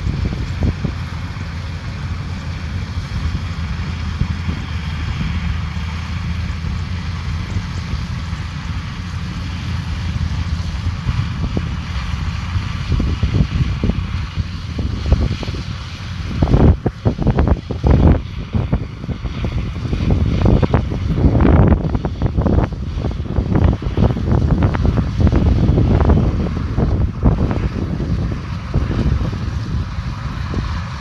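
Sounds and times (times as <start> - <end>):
combine harvester engine rumble: 0.0 - 31.0.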